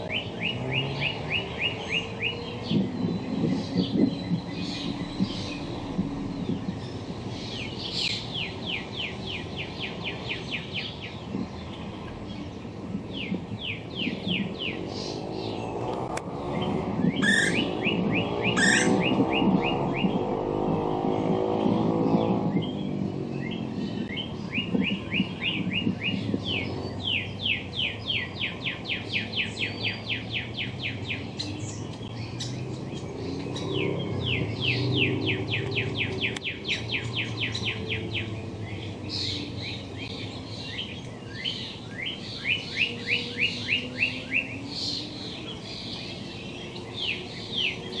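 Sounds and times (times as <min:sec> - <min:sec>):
songbird singing falling notes: 0:00.0 - 0:12.2, 0:13.1 - 0:48.0
steady low rumble: 0:02.6 - 0:09.0.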